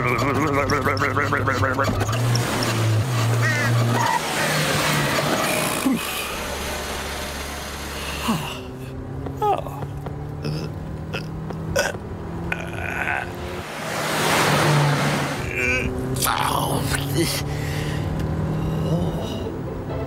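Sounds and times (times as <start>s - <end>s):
cartoon car engine running: 0.0s - 19.3s
short rising vocal grunts: 5.4s - 6.3s, 10.4s - 13.4s.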